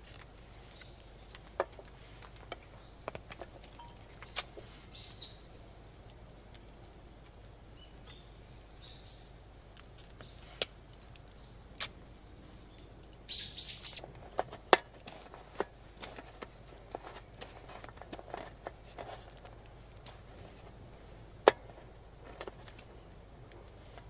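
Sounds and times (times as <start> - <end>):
birds chirping: 3.8 - 5.5, 7.7 - 9.4, 11.3 - 14.1.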